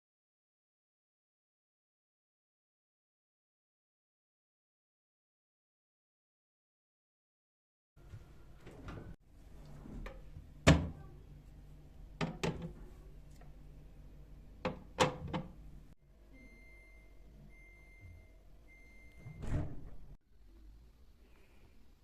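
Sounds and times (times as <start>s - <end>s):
low steady hum: 8.0s - 22.0s
knocks and clunks of handling: 12.2s - 12.9s
faint high steady tone: 16.1s - 19.6s.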